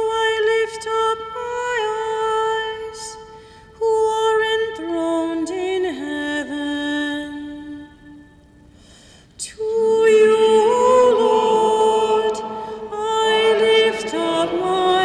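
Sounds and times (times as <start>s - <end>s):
solo singer chanting a psalm: 9.5s - 15.0s.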